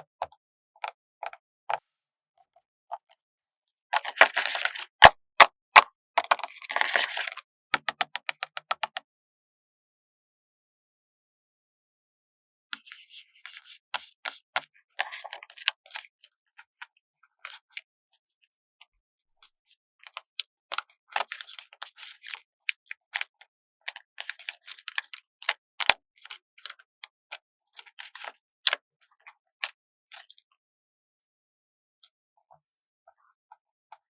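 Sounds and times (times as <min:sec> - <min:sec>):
stickers pressed with taps: 0:07.8 - 0:09.0.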